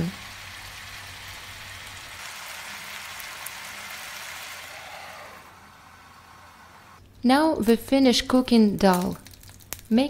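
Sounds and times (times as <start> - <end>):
food sizzling in a frying pan: 0.0 - 6.7.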